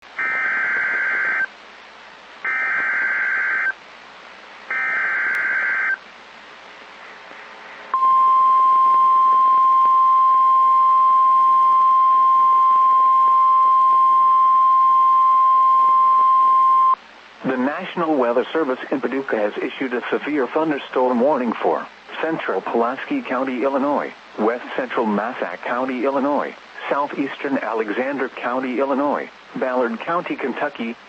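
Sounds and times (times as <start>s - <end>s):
steady warning alarm tone: 0.2s - 1.5s, 2.5s - 3.7s.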